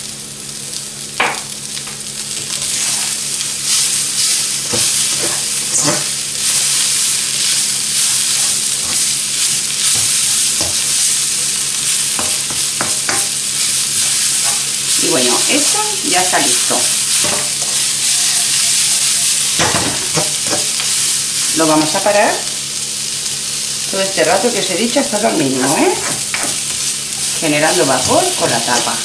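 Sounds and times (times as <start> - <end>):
food sizzling in a wok: 0.0 - 29.0
spatula scraping a pan: 2.5 - 21.5.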